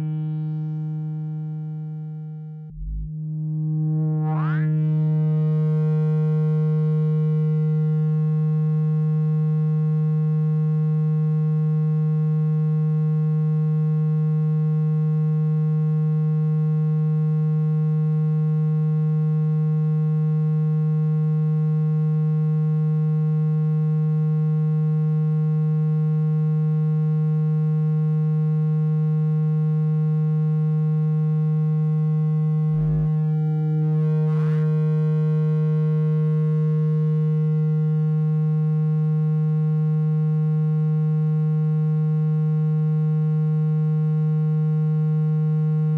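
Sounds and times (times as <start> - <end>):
low electronic tone: 0.0 - 9.6, 31.6 - 38.7.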